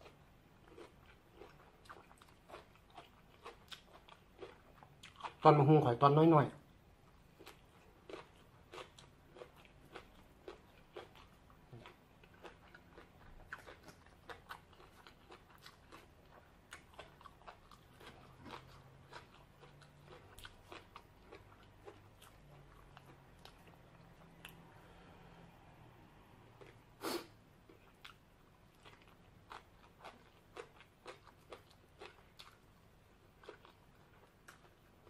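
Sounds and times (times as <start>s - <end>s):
crunchy chewing: 0.0s - 5.4s, 7.1s - 25.0s, 27.6s - 35.0s.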